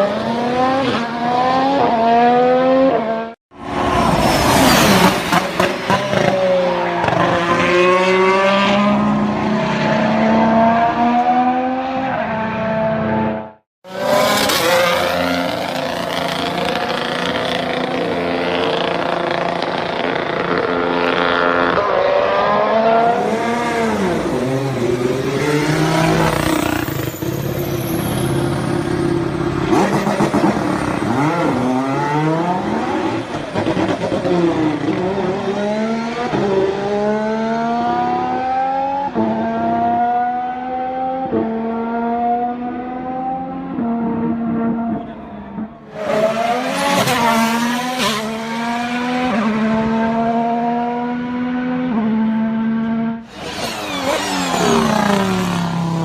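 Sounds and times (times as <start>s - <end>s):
racing car engine shifting gears: 45.9s - 56.0s.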